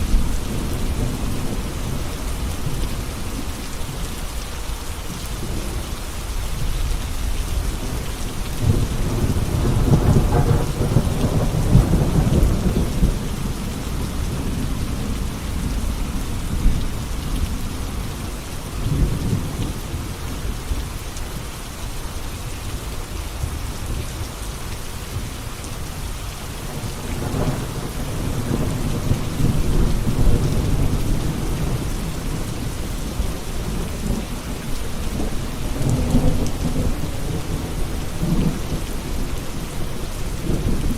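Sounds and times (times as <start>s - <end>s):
heavy rain: 0.0s - 40.9s
rolling thunder: 7.7s - 18.1s, 26.7s - 40.9s.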